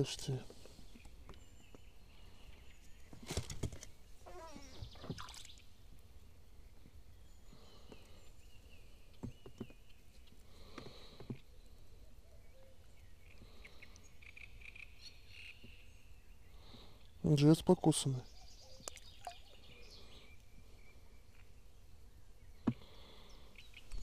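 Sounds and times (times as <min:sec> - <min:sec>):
faint bird calls: 0:04.2 - 0:05.7, 0:06.7 - 0:17.2, 0:18.2 - 0:24.0.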